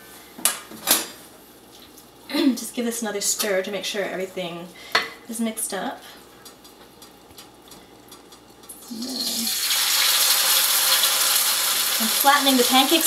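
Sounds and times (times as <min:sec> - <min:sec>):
batter sizzling in hot oil: 0:08.3 - 0:13.0.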